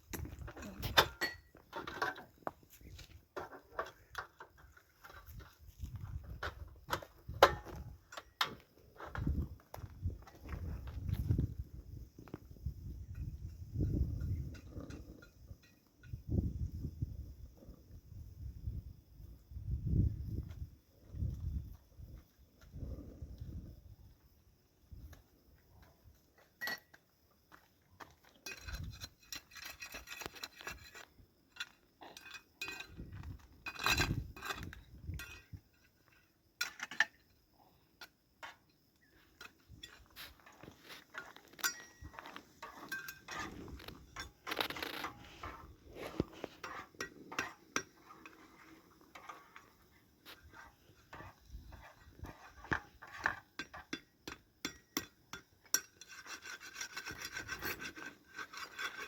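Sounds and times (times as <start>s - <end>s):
rubbing or scraping: 42.2s - 48.6s.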